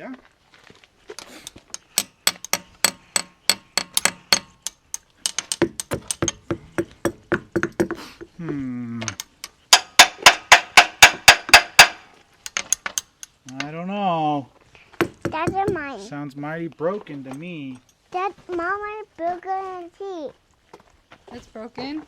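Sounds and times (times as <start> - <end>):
tool banging on hard surface: 1.2 - 13.7, 15.0 - 16.0.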